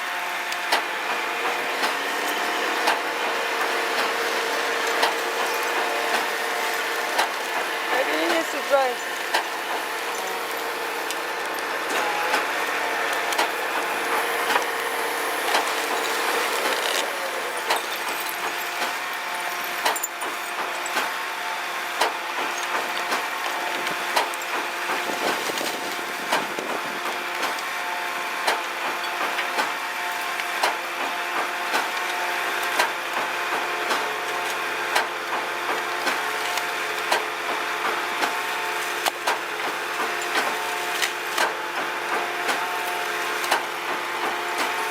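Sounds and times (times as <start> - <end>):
hydraulic whine: 0.0 - 27.9.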